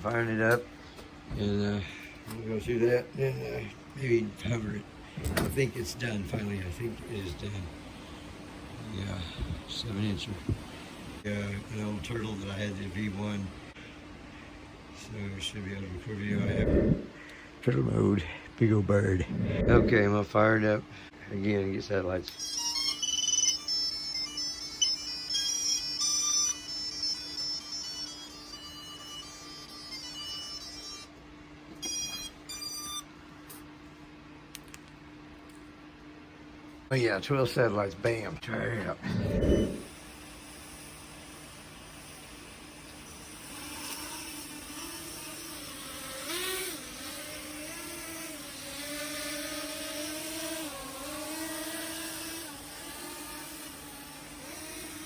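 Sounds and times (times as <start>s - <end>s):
steady low hum: 0.0s - 22.9s, 23.5s - 55.0s
motor startup tones: 16.2s - 17.2s, 19.2s - 20.1s, 22.4s - 31.2s, 39.0s - 55.0s.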